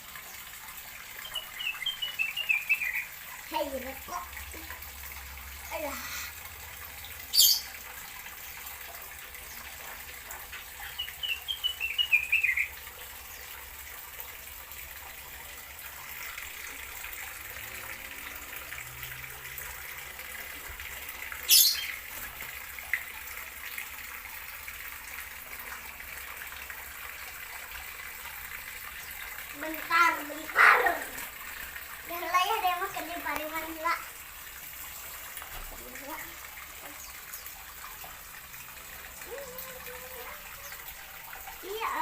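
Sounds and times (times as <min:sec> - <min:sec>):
bird chirps: 0:01.2 - 0:03.1, 0:21.5 - 0:22.0.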